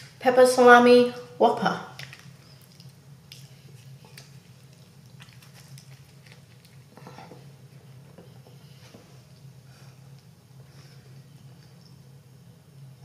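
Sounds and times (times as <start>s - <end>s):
low steady hum: 0.0s - 13.0s
person chewing with wet smacks: 2.0s - 10.3s.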